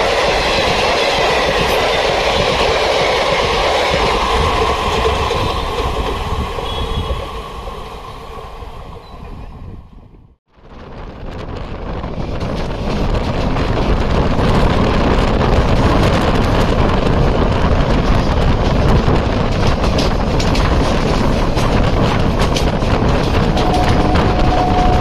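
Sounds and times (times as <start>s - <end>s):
train coaches rushing past: 0.0s - 10.0s, 12.2s - 25.0s
wheels clicking over rail joints: 12.1s - 25.0s.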